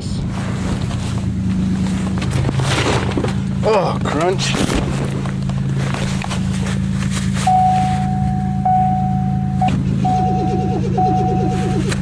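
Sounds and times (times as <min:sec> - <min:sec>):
low engine hum: 0:00.0 - 0:12.0
electronic warning tone: 0:07.5 - 0:12.0.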